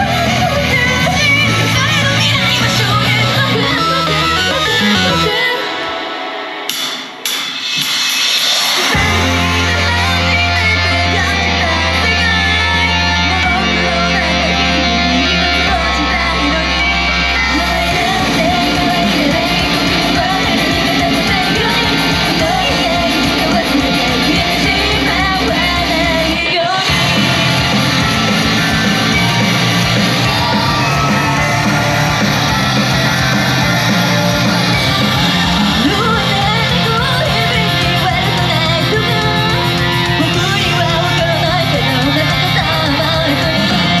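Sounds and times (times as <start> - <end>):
backing track with guitar and bass: 0.0 - 6.0, 8.6 - 44.0
group singing live: 0.0 - 7.2, 8.6 - 44.0.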